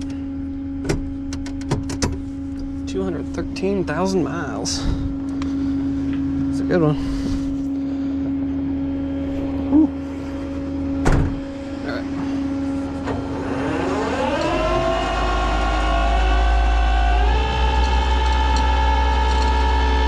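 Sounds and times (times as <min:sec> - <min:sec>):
steady hum: 0:00.0 - 0:20.0
engine starting and idling: 0:11.3 - 0:20.0.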